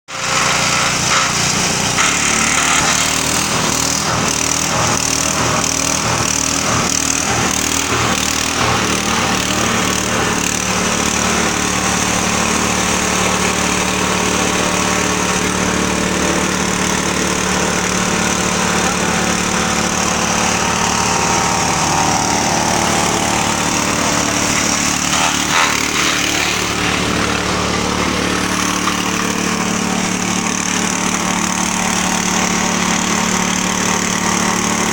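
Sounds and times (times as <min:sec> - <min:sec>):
chaff cutter engine hum: 0:00.1 - 0:34.9.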